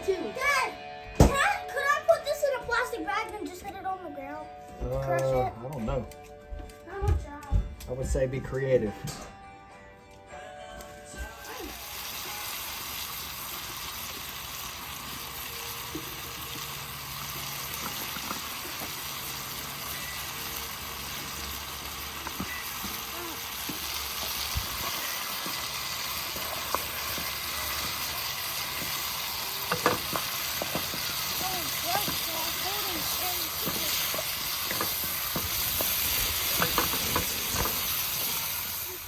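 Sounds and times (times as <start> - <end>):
food sizzling in a pan: 11.2 - 39.0.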